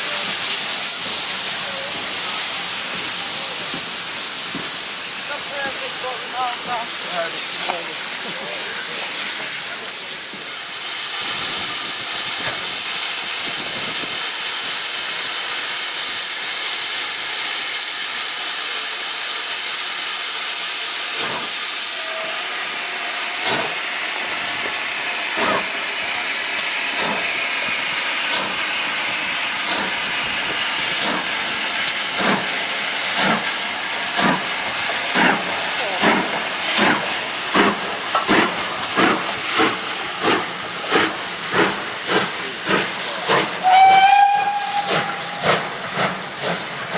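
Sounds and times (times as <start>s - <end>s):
steam locomotive exhaust beats: 0.0s - 46.9s
steam locomotive hissing: 0.0s - 46.9s.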